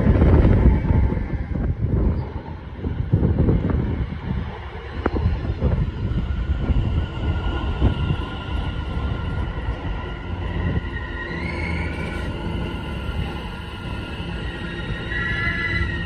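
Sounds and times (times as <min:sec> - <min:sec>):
train wheels rumbling on rails: 0:00.0 - 0:16.0
faint traction motor whine: 0:05.0 - 0:16.0.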